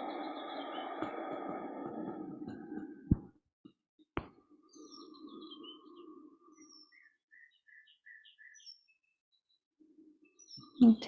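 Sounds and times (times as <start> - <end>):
low hum: 0.0 - 3.4
high bird chirps: 4.6 - 9.6.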